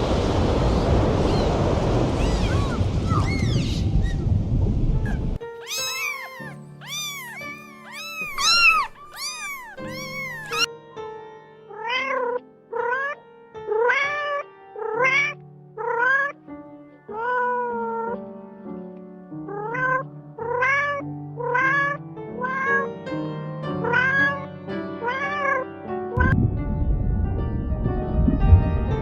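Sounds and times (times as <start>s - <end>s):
cat meowing: 2.2s - 3.3s, 5.1s - 10.7s, 11.7s - 16.4s, 17.1s - 18.2s, 19.5s - 22.8s, 23.8s - 24.4s, 25.0s - 25.7s.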